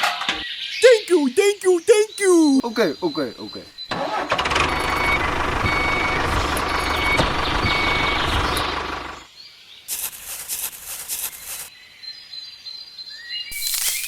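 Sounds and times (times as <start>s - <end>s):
small vehicle engine running: 3.9s - 9.3s
reversing alarm beeping: 4.6s - 8.7s.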